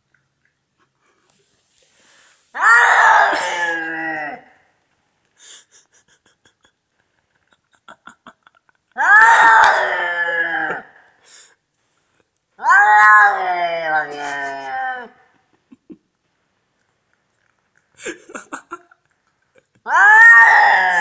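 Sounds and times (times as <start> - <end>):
cat yowling: 2.6 - 4.5, 9.0 - 10.8, 12.6 - 15.2, 19.8 - 21.0.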